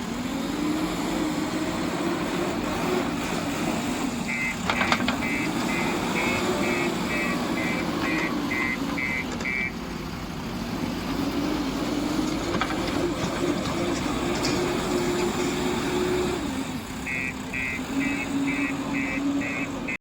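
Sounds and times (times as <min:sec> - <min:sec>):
heavy vehicle engine running: 0:00.0 - 0:20.0
reversing alarm beeping: 0:04.3 - 0:09.8, 0:17.0 - 0:20.0.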